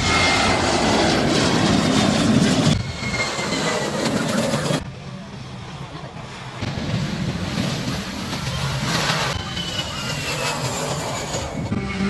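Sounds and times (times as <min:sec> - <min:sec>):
jet airliner roaring overhead: 0:00.0 - 0:12.0.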